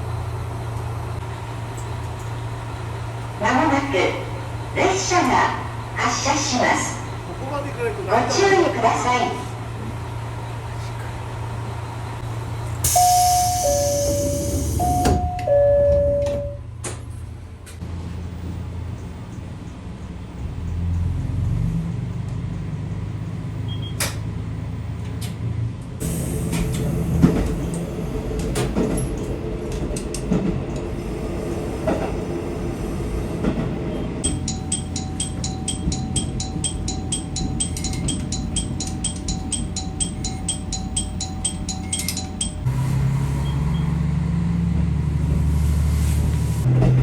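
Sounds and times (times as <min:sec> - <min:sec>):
diesel railcar engine running: 0:00.0 - 0:47.0
train rumble with wheel clatter: 0:00.0 - 0:47.0
train door chime: 0:12.8 - 0:17.1, 0:34.2 - 0:42.7
music with regular ticking: 0:34.2 - 0:42.7.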